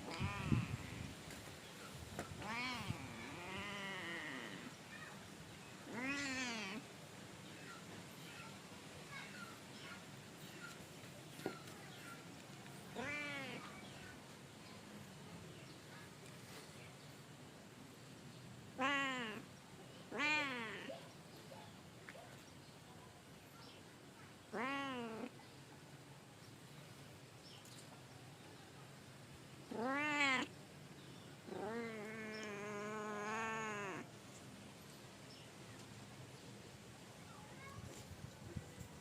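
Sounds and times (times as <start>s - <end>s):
cat meowing: 0.0s - 1.1s, 2.4s - 4.7s, 5.9s - 6.8s, 13.0s - 13.7s, 18.8s - 19.4s, 20.1s - 21.0s, 24.5s - 25.3s, 29.7s - 30.5s, 31.5s - 34.0s.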